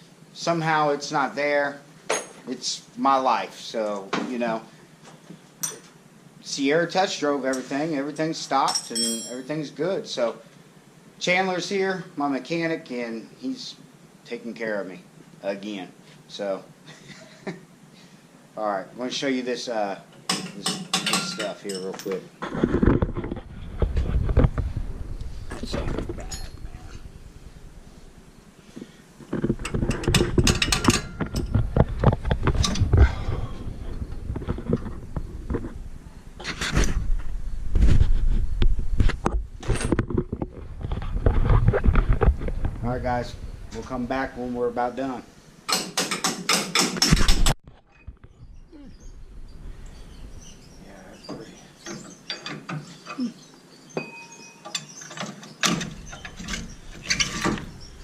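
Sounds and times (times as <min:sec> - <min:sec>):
metal tools clinking: 0:08.6 - 0:09.6, 0:20.2 - 0:22.3, 0:26.0 - 0:27.1, 0:29.7 - 0:31.5, 0:54.0 - 0:57.8
metal tools knocking on brakes: 0:08.7 - 0:09.5, 0:20.2 - 0:22.2, 0:29.6 - 0:31.6.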